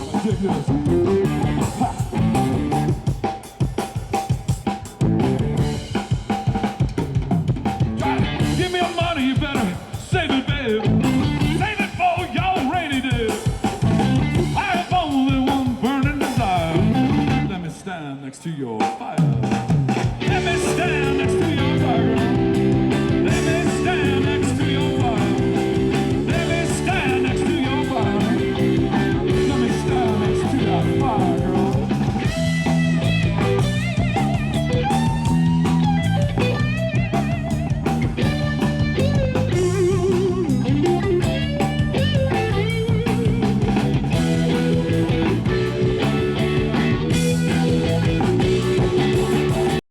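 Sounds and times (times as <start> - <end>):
rock band playing: 0.0 - 18.2, 18.8 - 49.8
guitar bending wavering notes: 20.2 - 49.8.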